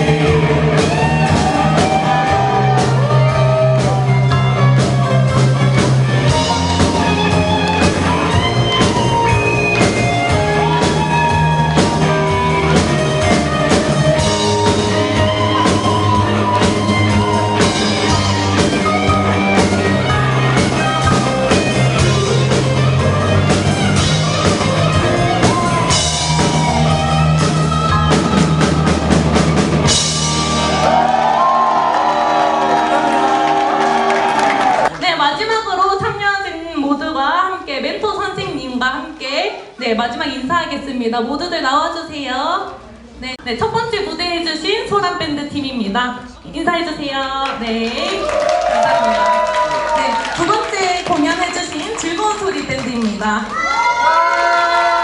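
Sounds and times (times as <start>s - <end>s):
drum hits: 0.0s - 35.0s
rock band playing: 0.0s - 35.0s, 48.0s - 55.0s.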